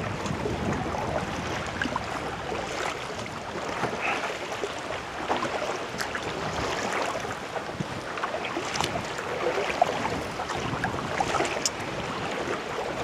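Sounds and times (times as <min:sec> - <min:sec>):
paddle splashing water: 0:00.0 - 0:13.0
small drips and clicks: 0:11.4 - 0:11.8.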